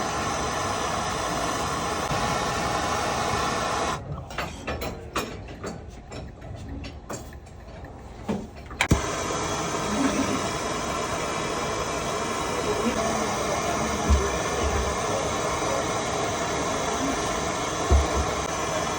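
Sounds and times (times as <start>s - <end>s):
torch flame hissing: 0.0s - 4.0s, 8.8s - 18.9s.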